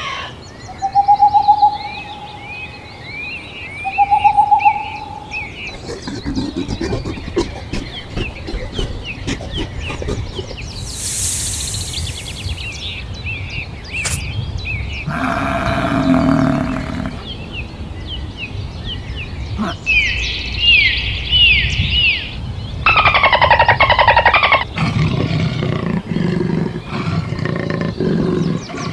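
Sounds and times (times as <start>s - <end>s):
loud animal calls: 3.8s - 13.0s, 15.1s - 17.3s, 22.9s - 28.9s
short bird chirps: 10.7s - 13.0s.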